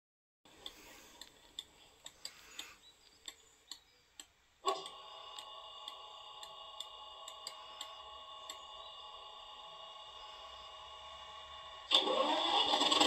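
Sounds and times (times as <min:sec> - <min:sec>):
electronic hum: 0:00.5 - 0:13.0
light ticking clicks: 0:00.6 - 0:07.9.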